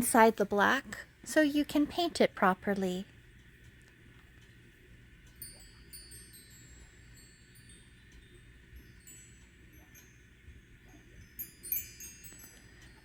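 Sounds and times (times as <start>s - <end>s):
high tinkling chimes: 5.3s - 13.0s.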